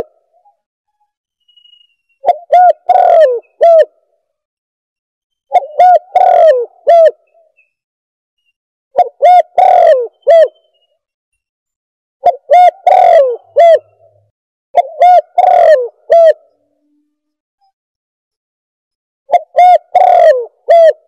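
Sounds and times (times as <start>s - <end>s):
dove cooing: 2.2s - 4.0s, 5.5s - 7.3s, 9.0s - 10.6s, 12.2s - 14.1s, 14.8s - 16.6s, 19.3s - 21.0s.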